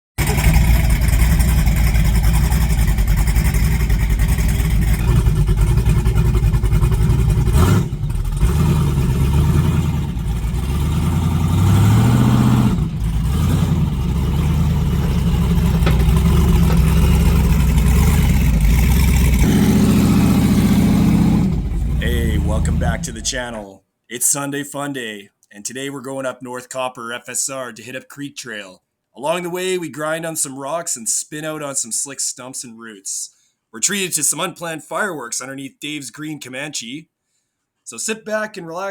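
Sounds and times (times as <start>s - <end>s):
truck engines revving: 4.3s - 23.6s.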